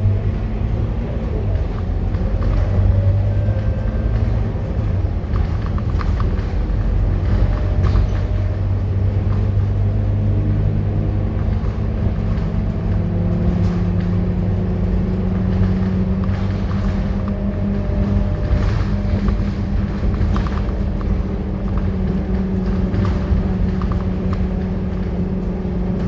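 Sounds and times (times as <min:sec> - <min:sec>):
bus engine droning: 0:00.0 - 0:26.0
rising engine whine: 0:00.0 - 0:26.0.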